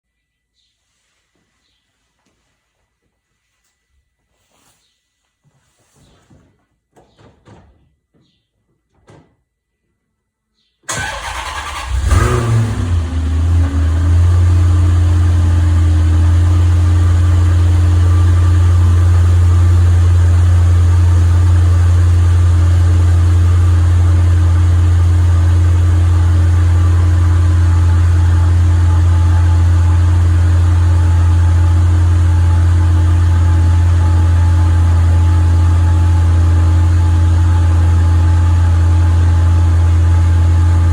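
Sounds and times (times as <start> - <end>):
starter motor cranking: 10.9 - 12.4
car engine revving and idling: 11.0 - 40.9.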